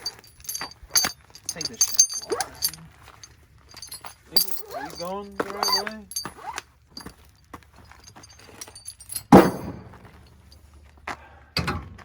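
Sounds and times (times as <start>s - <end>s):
metal hardware clinking: 0.0s - 7.2s, 7.9s - 10.3s
loud metallic clank: 8.6s - 9.9s.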